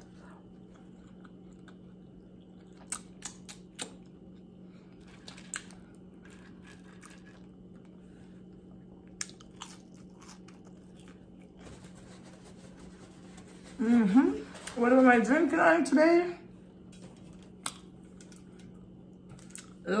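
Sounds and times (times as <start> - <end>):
chewing meat: 0.0 - 11.6
steady low hum: 0.0 - 20.0
wet clicks and smacks: 2.8 - 4.1.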